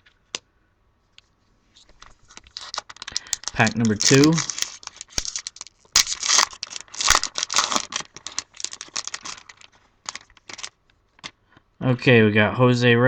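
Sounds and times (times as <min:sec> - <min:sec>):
wrapper tearing and crinkling: 0:02.0 - 0:11.3.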